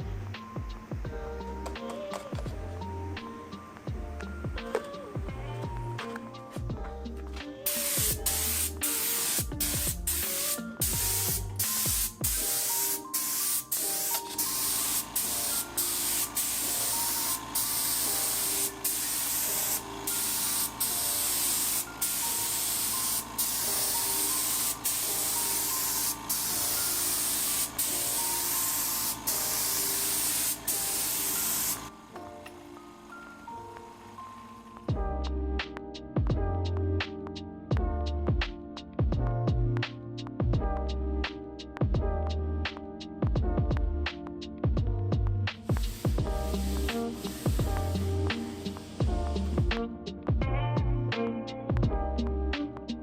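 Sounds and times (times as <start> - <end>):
spray gun hissing: 7.6 - 31.9, 45.7 - 49.5.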